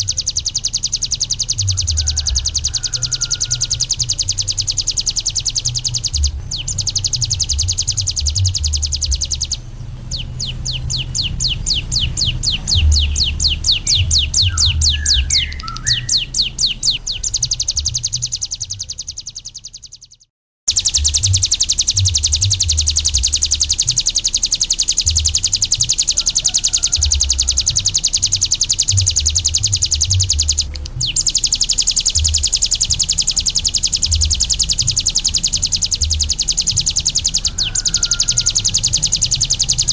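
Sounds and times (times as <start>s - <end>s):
bird high-pitched trill: 0.0s - 39.9s
low uneven rumble: 1.6s - 18.0s.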